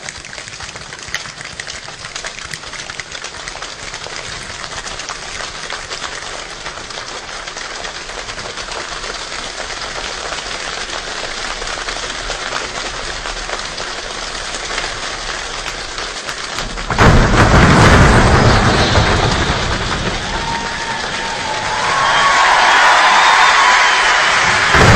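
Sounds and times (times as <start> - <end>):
hands clapping and slapping like rain: 0.0 - 24.9
loud deep clapping burst: 0.0 - 24.9.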